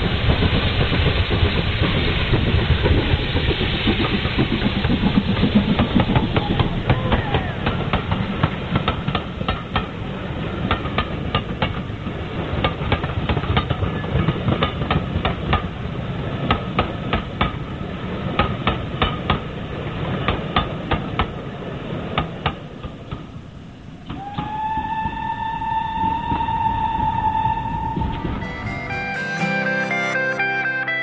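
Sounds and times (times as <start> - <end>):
train rumbling by: 0.0 - 21.5.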